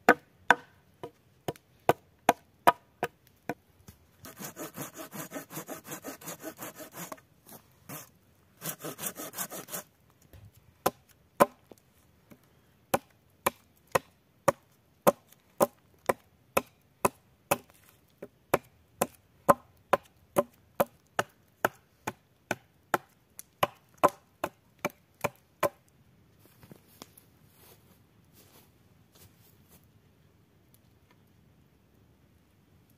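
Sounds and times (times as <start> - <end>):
sharp strikes on wood: 0.1 - 0.7
hand saw cutting wood: 4.2 - 9.9.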